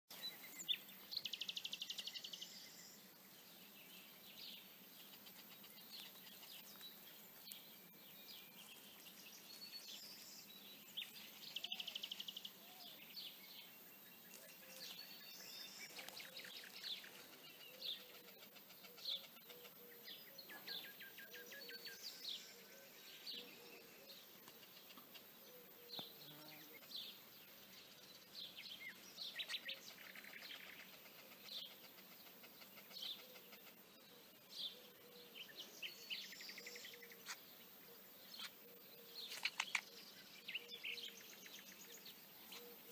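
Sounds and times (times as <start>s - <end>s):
birds chattering: 0.1s - 42.9s
small birds chirping: 0.1s - 42.9s.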